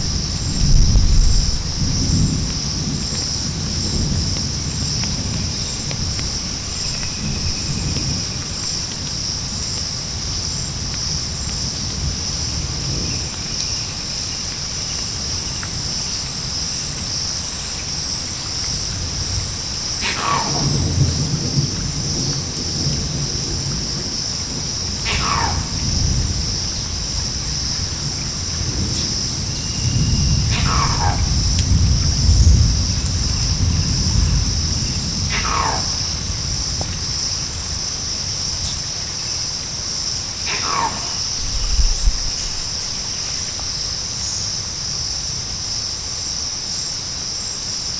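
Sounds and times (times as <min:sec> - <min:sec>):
low rumble of distant thunder: 0:00.0 - 0:13.9, 0:18.7 - 0:39.2, 0:40.1 - 0:43.8
high pulsing insect chorus: 0:00.0 - 0:47.9
long falling calls: 0:25.0 - 0:26.0, 0:30.4 - 0:31.4.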